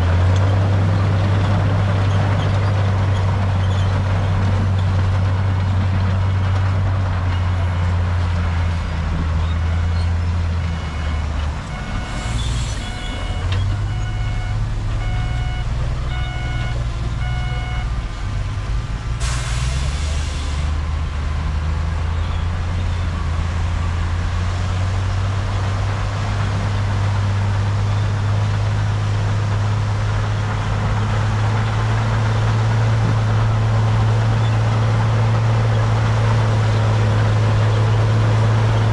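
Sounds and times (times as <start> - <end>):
diesel truck engine running: 0.0 - 38.9
reversing alarm beeping: 7.4 - 17.9
air brake hiss: 19.2 - 20.7.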